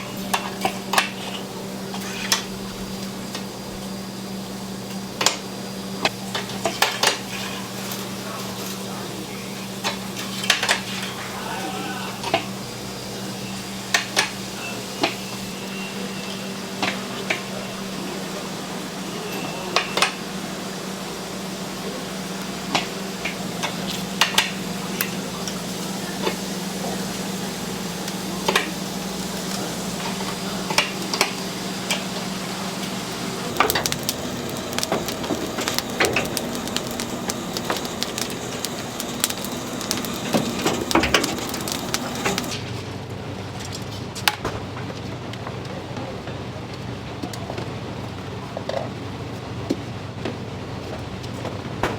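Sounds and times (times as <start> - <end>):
low machine hum: 17.5 - 42.6
utensils clicking on wood and dishes: 33.5 - 42.6.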